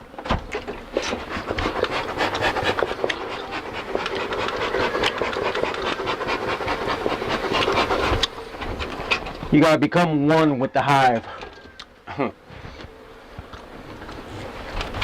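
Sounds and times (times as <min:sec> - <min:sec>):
honeybees buzzing: 0:00.0 - 0:15.0
honeycomb crackling and rubbing: 0:00.6 - 0:09.6.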